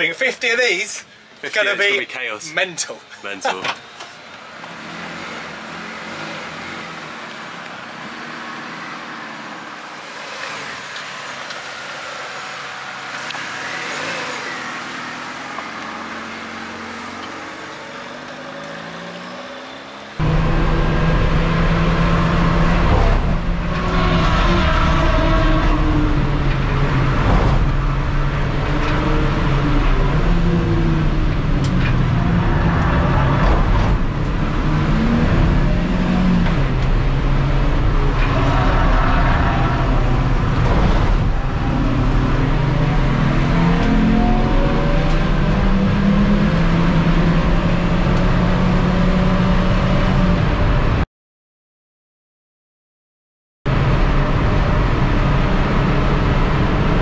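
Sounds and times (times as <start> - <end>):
road noise: 0.0 - 51.0, 53.7 - 57.0
race car engine revving: 20.2 - 51.0.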